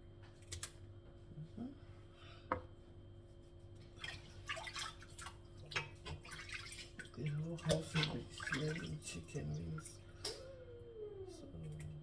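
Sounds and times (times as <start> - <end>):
water splashing in a sink: 3.8 - 9.9.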